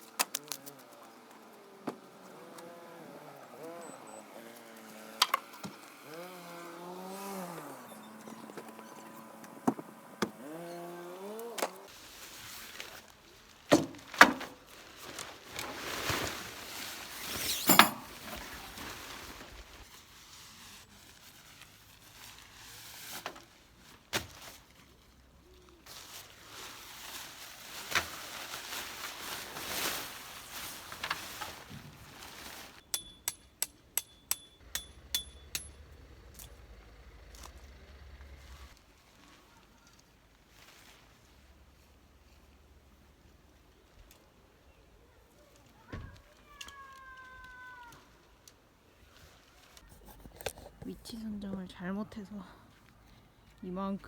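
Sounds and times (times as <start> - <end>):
rustling: 10.4 - 32.9, 37.3 - 44.0, 49.0 - 54.0
camping gear knocks and thunks: 13.7 - 14.7, 17.2 - 18.6.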